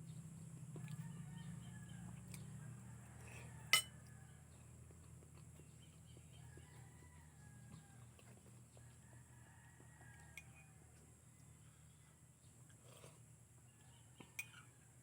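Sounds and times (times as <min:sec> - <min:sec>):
spoon clinking against dish: 0:03.7 - 0:04.0.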